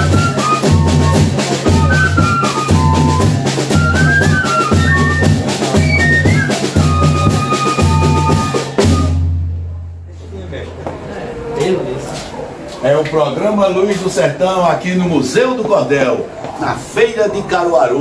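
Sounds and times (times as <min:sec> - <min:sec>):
snare drum: 0:00.0 - 0:09.6
fifes playing a melody: 0:00.0 - 0:09.8
cymbals: 0:00.0 - 0:09.9
bass drum beat: 0:00.0 - 0:10.0.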